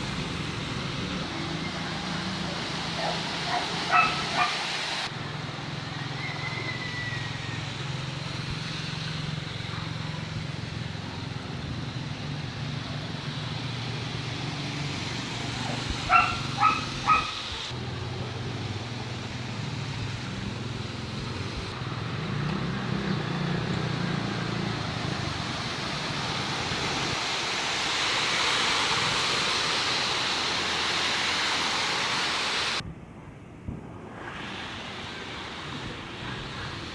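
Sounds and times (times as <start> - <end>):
dog barking: 2.5 - 4.7, 15.6 - 17.4.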